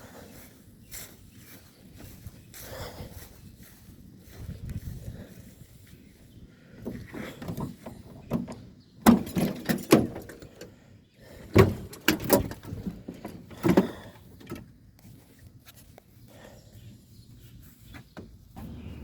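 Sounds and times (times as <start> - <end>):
hand tools and metal parts clanking: 6.8 - 10.7, 11.3 - 15.1.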